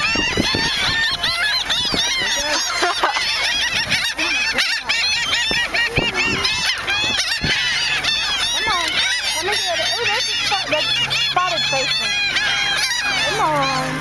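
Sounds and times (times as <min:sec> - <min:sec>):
flock of gulls calling: 0:00.0 - 0:14.0.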